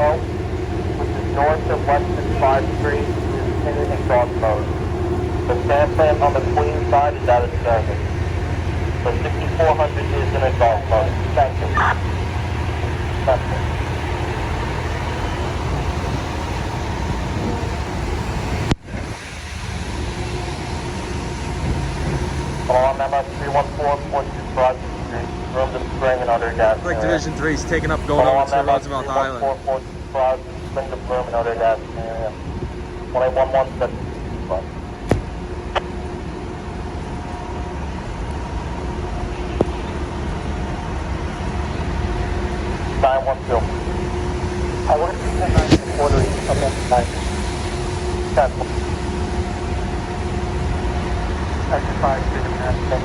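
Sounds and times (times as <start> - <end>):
faint steady hum: 0.0 - 18.8
rushing rumbling outdoor noise: 0.0 - 53.0.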